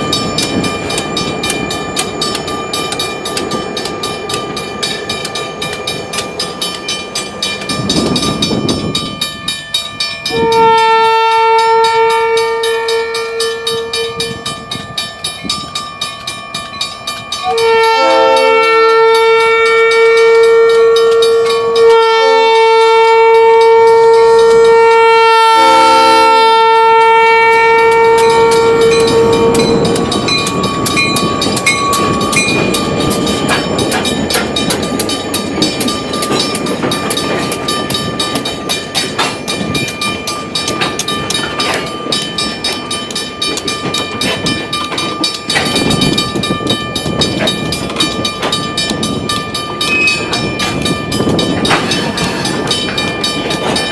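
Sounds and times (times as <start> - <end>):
train wheels clickety-clack: 0.0 - 26.5, 27.5 - 53.9
locomotive air horn: 10.3 - 14.4, 17.4 - 30.0.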